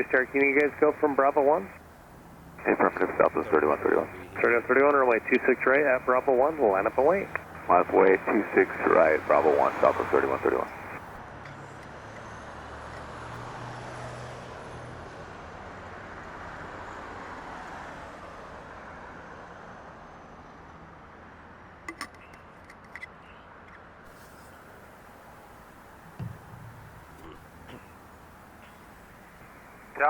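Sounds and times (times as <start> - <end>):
distant jet engine rushing: 0.0 - 11.2, 24.1 - 30.0.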